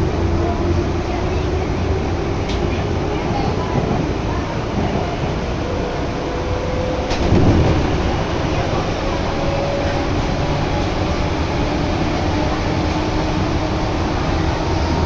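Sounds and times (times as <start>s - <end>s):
train wheels rumbling on rail: 0.0s - 15.0s
click: 2.4s - 2.6s.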